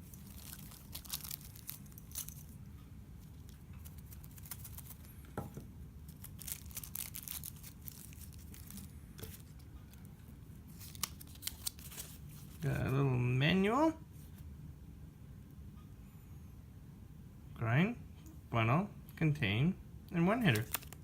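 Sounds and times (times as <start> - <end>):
packaging rustling: 0.0 - 2.6, 3.3 - 5.2, 6.1 - 9.6, 10.7 - 12.7, 20.5 - 21.0.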